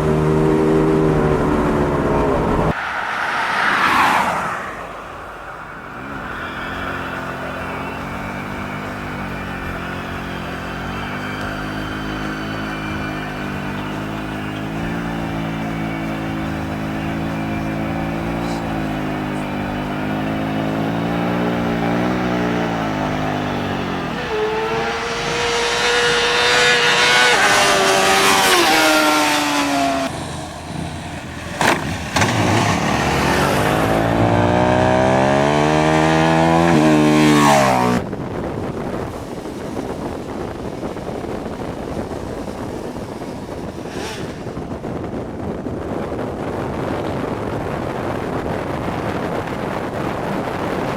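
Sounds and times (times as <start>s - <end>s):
motorcycle engines revving: 0.0s - 50.9s
wind noise on microphone: 6.8s - 50.9s.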